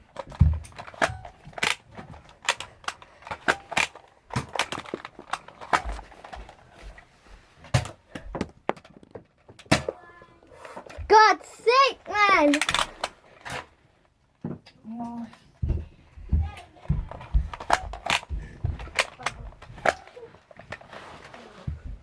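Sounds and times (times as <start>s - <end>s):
toy dart blasters firing: 12.2s - 12.9s.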